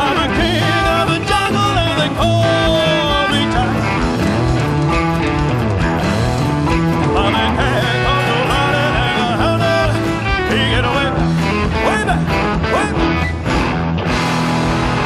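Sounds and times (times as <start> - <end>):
electric guitar bending notes: 0.0 - 15.0
live rock band playing: 0.0 - 15.0.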